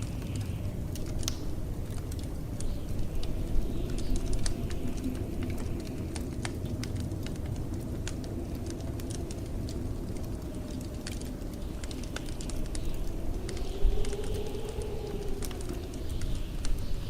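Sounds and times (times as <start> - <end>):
low rumble of blizzard wind: 0.0 - 17.0
wood fire crackling and popping: 0.0 - 17.0
high wavering wind whistle: 8.2 - 17.0.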